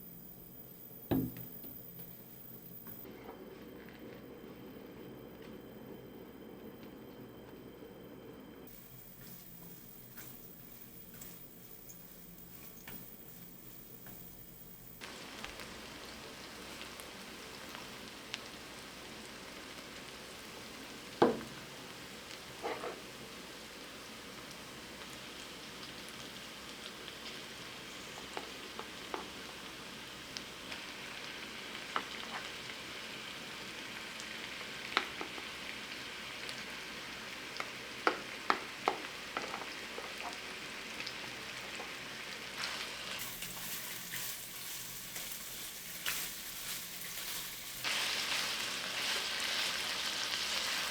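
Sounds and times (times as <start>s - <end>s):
food sizzling in oil: 8.7s - 50.9s
spatula scraping a pan: 22.6s - 23.0s.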